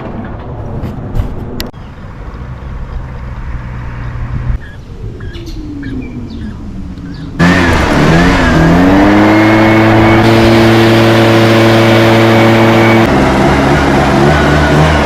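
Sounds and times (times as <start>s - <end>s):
small engine revving: 7.4s - 15.0s.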